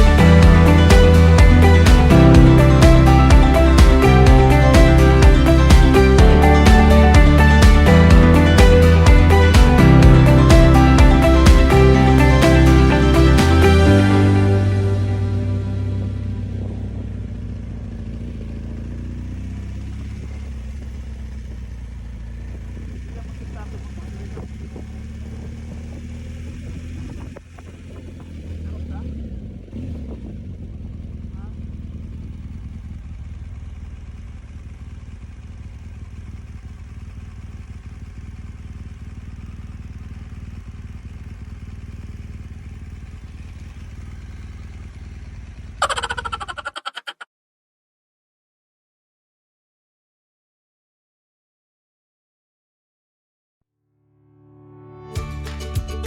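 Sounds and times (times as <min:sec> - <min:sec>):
motorcycle engine running: 0:00.0 - 0:46.8
road and wind noise: 0:15.3 - 0:38.1.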